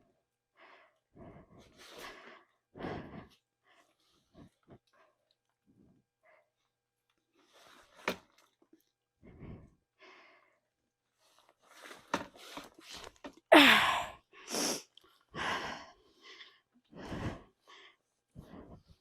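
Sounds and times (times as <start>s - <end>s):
person breathing hard: 0.6s - 4.9s, 9.2s - 10.7s, 13.5s - 19.0s.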